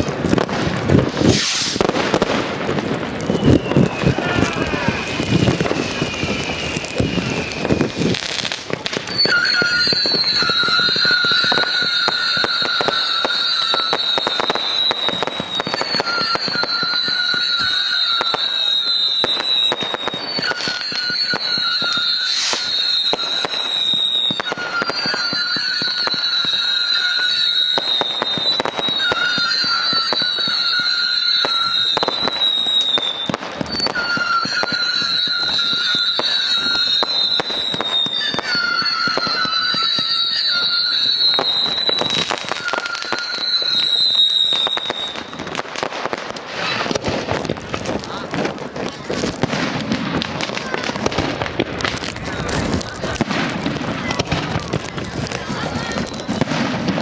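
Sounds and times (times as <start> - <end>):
fireworks bangs and pops: 0.0 - 57.0
high falling whistle: 1.2 - 1.9, 3.3 - 8.2, 9.0 - 45.6.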